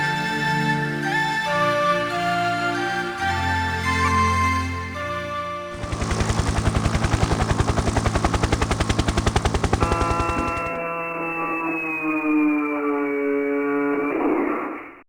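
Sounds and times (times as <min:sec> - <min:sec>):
rapid even rattle: 0:05.8 - 0:10.8.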